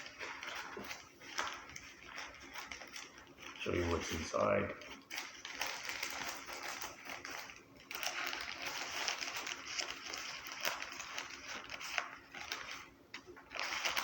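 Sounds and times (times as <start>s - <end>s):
paper packaging rustling and crinkling: 0.0s - 14.0s.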